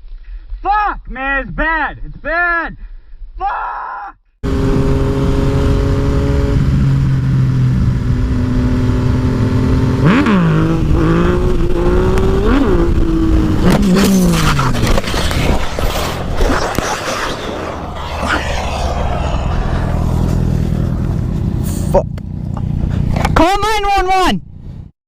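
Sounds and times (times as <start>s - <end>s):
motorcycle engine revving: 4.4s - 23.4s
wind and road noise: 4.4s - 24.9s
knocks and scraping: 13.7s - 18.6s.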